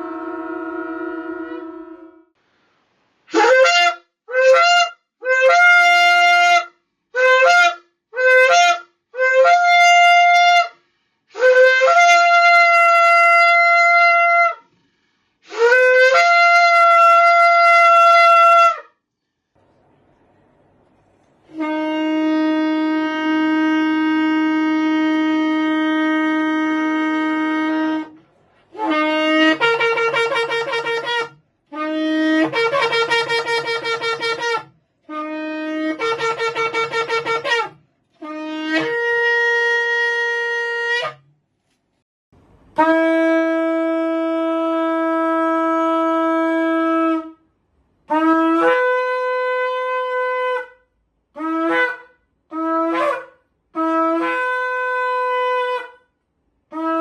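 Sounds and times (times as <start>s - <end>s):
lower-pitched shofar note: 0.0s - 2.3s, 3.3s - 14.6s, 15.4s - 18.9s, 21.4s - 41.2s, 42.8s - 47.4s
shofar blasts: 0.0s - 2.3s, 3.3s - 14.7s, 15.4s - 19.0s, 21.4s - 41.3s, 42.7s - 47.4s, 48.1s - 56.1s, 56.7s - 57.0s.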